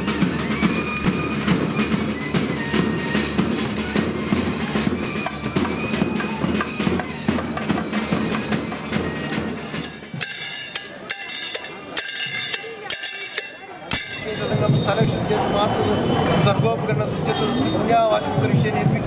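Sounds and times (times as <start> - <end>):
sharp metallic strikes: 10.2 - 14.7.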